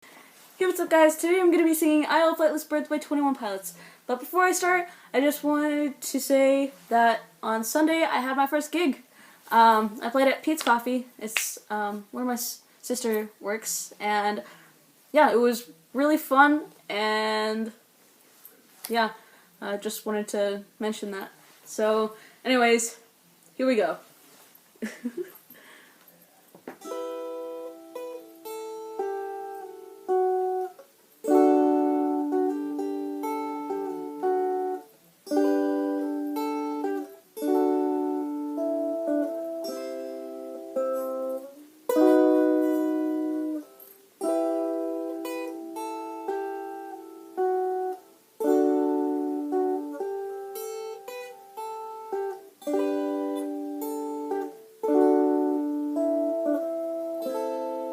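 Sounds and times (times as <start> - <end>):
ukulele chords: 26.8 - 57.9.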